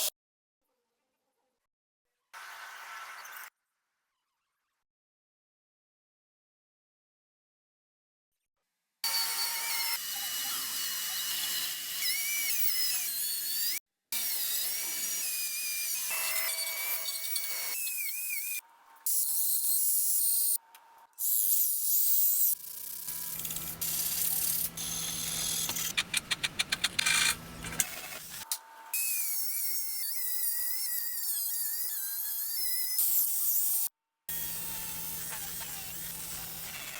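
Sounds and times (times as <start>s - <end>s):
power tool whining on metal: 22.5s - 28.6s, 34.3s - 36.9s.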